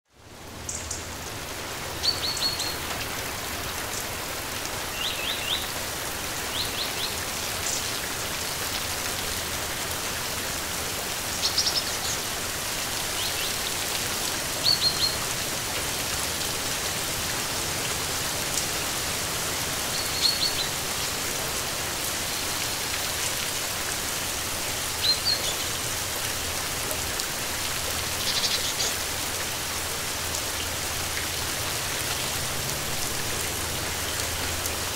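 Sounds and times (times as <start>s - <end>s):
steady rain: 0.1s - 34.9s.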